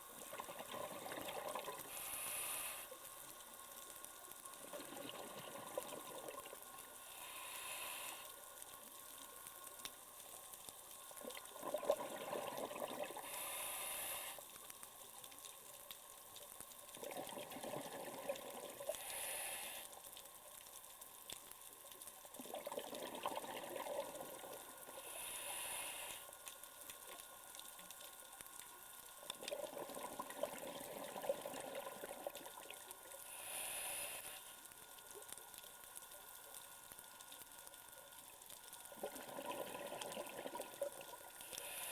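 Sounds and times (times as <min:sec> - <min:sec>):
exhaled bubbles rushing: 0:00.3 - 0:01.8, 0:11.2 - 0:13.2, 0:22.4 - 0:24.5, 0:38.9 - 0:40.8
regulator inhale hiss: 0:01.7 - 0:03.3, 0:06.9 - 0:08.7, 0:13.1 - 0:14.6, 0:18.8 - 0:20.1, 0:24.9 - 0:26.6, 0:33.2 - 0:34.7, 0:41.4 - 0:41.9.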